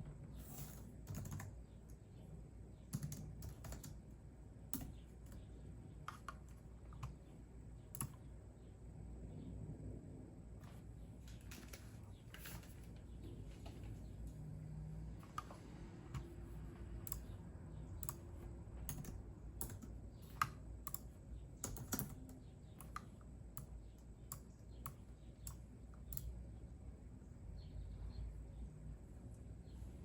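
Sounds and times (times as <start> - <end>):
computer keyboard typing: 0.5 - 1.8, 2.8 - 4.1, 4.7 - 8.3, 15.2 - 26.4.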